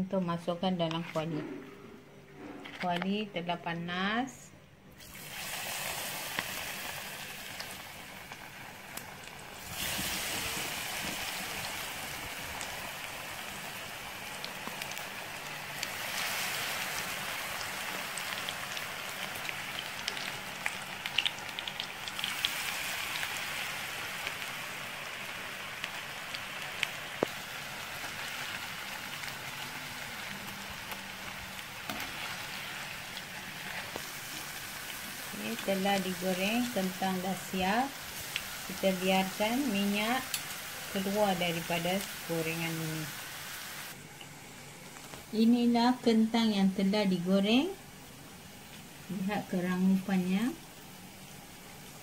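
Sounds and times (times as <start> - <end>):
potato slices sizzling in oil: 5.0 - 52.0.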